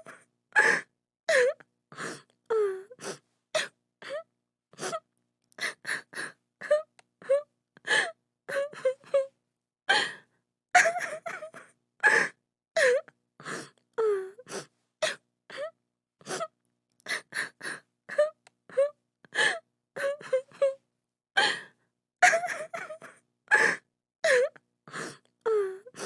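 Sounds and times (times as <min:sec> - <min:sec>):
woman sobbing: 0:10.8 - 0:13.0, 0:18.1 - 0:20.8, 0:22.2 - 0:24.5.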